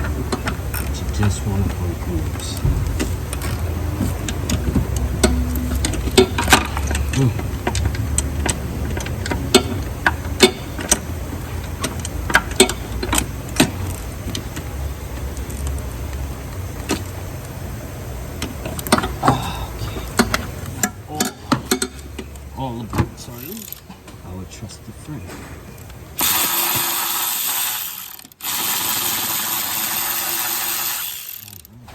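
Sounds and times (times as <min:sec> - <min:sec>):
steady low hum: 0:00.0 - 0:31.9
ratchet metallic clicks: 0:11.8 - 0:14.4, 0:23.3 - 0:23.8, 0:26.2 - 0:31.7.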